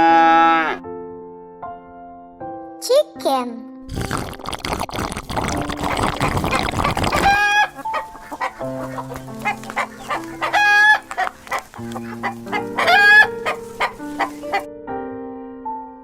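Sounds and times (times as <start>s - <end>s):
drawn-out chicken calls: 5.9s - 14.7s
chickens clucking: 6.0s - 14.7s
light background music: 7.2s - 16.0s.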